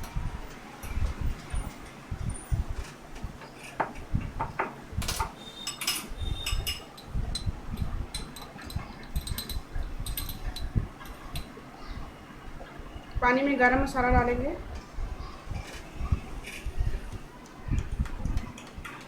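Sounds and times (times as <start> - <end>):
dull low thuds: 4.0 - 5.1.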